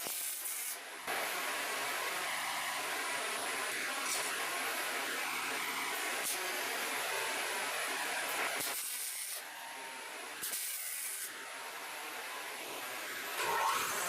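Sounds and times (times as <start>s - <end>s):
welding arc crackling: 0.0s - 9.5s, 10.4s - 11.4s.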